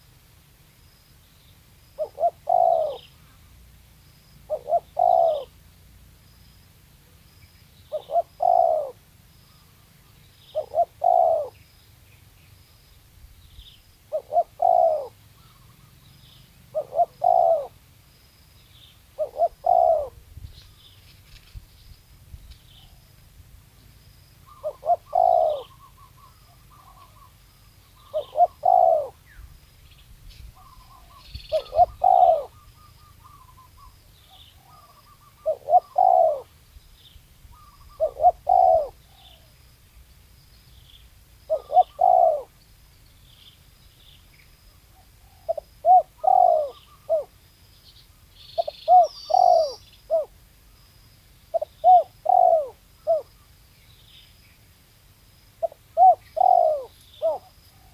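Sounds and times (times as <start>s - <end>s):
dove cooing: 2.0s - 3.7s, 4.4s - 5.6s, 7.8s - 9.0s, 10.5s - 11.6s, 14.1s - 16.0s, 16.7s - 17.8s, 19.1s - 20.3s, 24.4s - 29.4s, 30.6s - 36.6s, 37.5s - 39.6s, 41.4s - 42.6s, 44.9s - 47.4s, 48.6s - 50.4s, 51.5s - 53.5s, 55.6s - 57.9s
small bird chirps: 4.4s - 5.6s, 7.3s - 17.8s, 23.8s - 39.6s, 40.4s - 50.4s, 55.6s - 57.9s.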